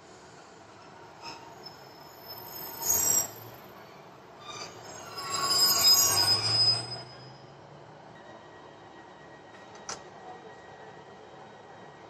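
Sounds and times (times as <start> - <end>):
train brakes squealing: 0.8 - 7.6.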